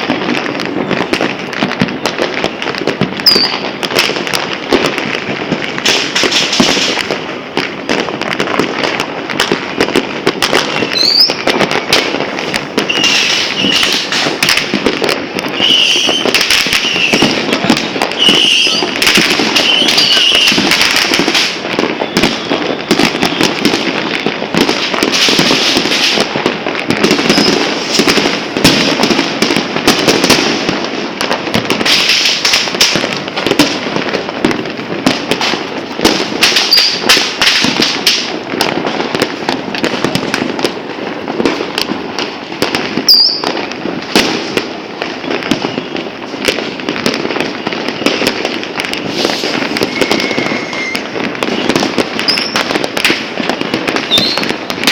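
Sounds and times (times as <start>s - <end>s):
rising firework whistle: 0.0s - 4.3s, 7.9s - 35.6s, 36.2s - 40.5s, 42.6s - 54.9s
fireworks banging and crackling: 0.0s - 54.9s.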